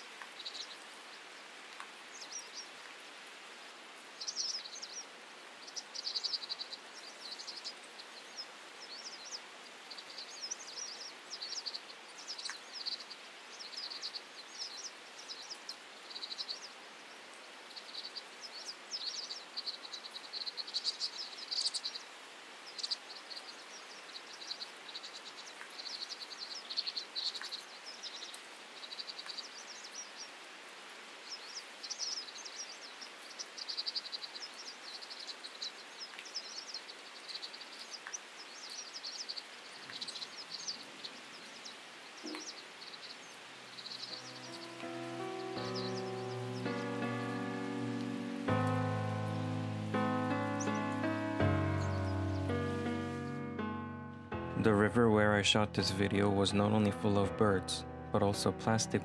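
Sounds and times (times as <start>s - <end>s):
faint background hiss: 0.0s - 54.4s
small birds chirping: 0.0s - 54.4s.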